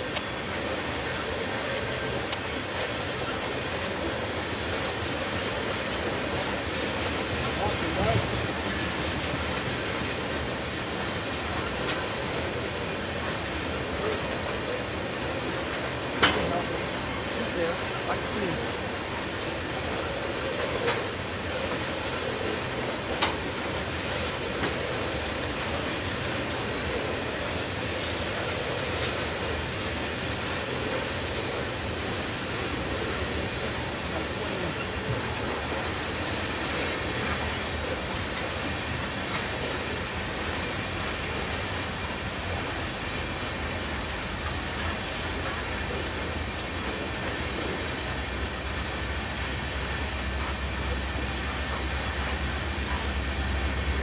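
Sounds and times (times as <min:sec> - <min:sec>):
faint high wheel squeal: 0:00.0 - 0:06.9, 0:11.6 - 0:13.0, 0:20.0 - 0:21.2
wheel clacks: 0:00.0 - 0:54.0
wheel-on-rail noise: 0:00.0 - 0:54.0.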